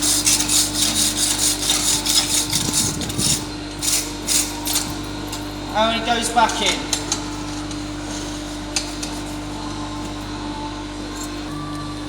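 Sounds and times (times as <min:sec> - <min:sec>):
wire brush scrubbing iron: 0:00.0 - 0:05.0.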